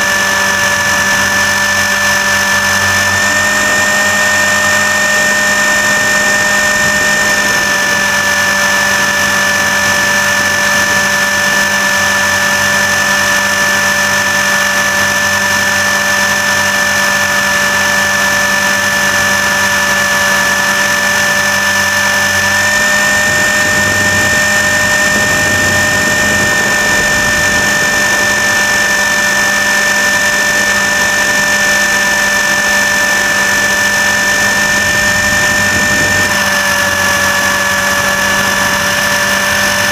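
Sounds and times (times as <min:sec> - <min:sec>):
rc helicopter motor whine: 0:00.0 - 0:39.9.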